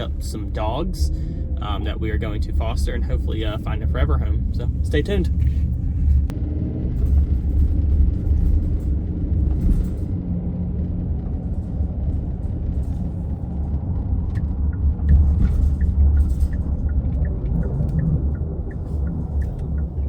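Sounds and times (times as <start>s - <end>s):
tyres and engine rumble: 0.0s - 20.0s
faint regular ticking: 14.3s - 20.0s.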